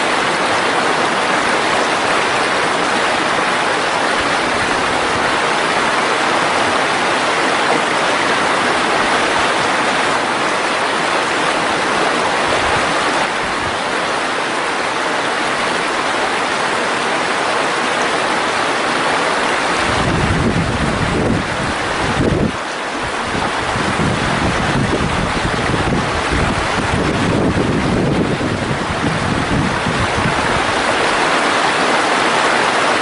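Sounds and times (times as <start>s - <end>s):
stream water rushing: 0.0s - 33.0s
wind buffeting microphone: 19.6s - 32.2s.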